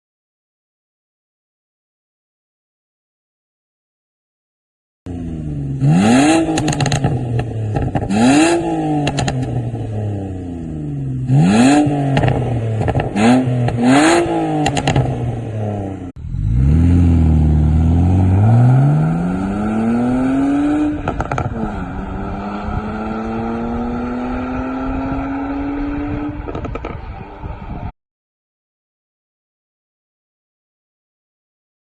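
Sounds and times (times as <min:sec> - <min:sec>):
car engine revving and accelerating: 0:05.1 - 0:27.6
exhaust pops and crackles: 0:06.5 - 0:08.1, 0:09.0 - 0:09.6, 0:12.1 - 0:13.8, 0:14.6 - 0:15.2, 0:21.0 - 0:21.6, 0:26.4 - 0:27.5.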